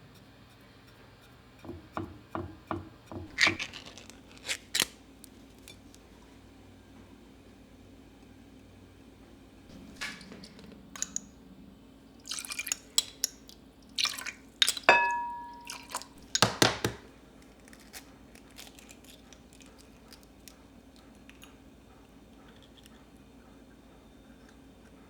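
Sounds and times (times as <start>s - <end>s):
dishes and utensils clinking: 9.7s - 11.3s, 14.8s - 17.0s
ringing clink of china: 14.9s - 15.8s.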